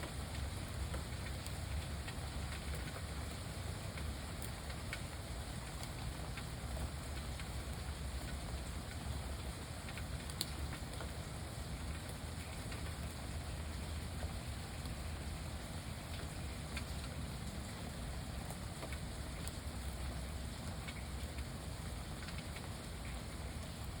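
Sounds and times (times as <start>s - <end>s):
rain falling on a lake: 0.0s - 24.0s
single raindrop ticks: 3.9s - 9.0s, 9.8s - 11.1s, 16.1s - 17.7s, 18.4s - 21.5s, 22.2s - 23.8s.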